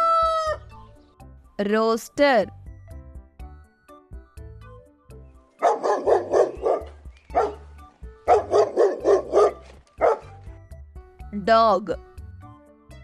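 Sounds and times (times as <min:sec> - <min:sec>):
background music with low notes: 0:00.0 - 0:13.0
dog barking: 0:05.6 - 0:07.6, 0:08.3 - 0:10.3.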